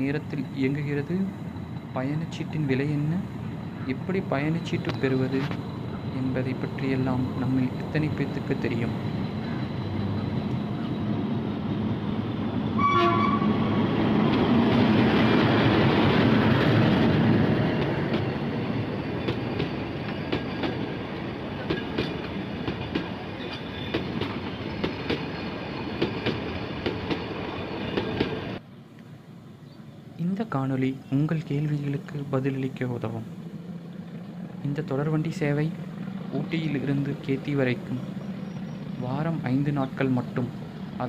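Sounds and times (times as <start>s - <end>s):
train running past: 0.0s - 41.0s
train horn toot: 12.8s - 13.8s
wheels clicking over rail joints: 21.6s - 27.3s.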